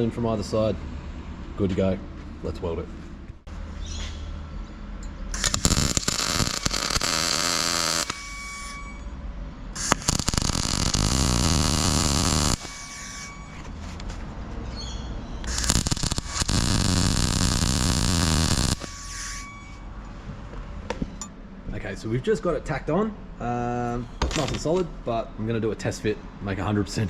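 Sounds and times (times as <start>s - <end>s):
welder arc crackling: 5.3s - 8.8s, 9.8s - 13.4s, 15.4s - 19.5s
welder low hum: 5.3s - 14.2s, 15.4s - 20.0s.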